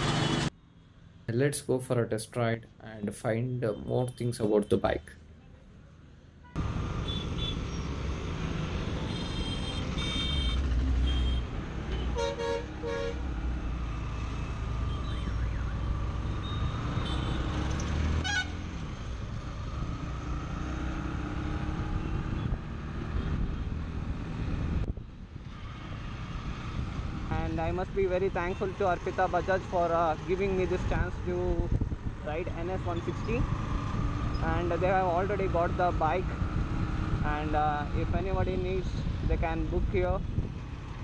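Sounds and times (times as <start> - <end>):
vehicle horns honking: 6.4 - 7.6, 9.0 - 13.2, 16.4 - 17.6, 18.2 - 18.6.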